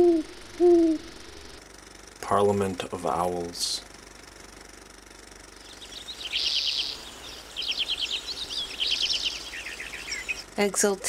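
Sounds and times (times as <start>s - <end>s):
songbird high trills: 5.6s - 10.6s.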